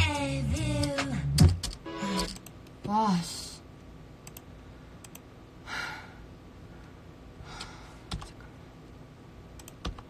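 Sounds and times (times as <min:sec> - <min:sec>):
computer keyboard or mouse clicks: 0:04.2 - 0:05.2, 0:07.6 - 0:08.4, 0:09.6 - 0:10.0
breathy sigh: 0:05.6 - 0:06.2.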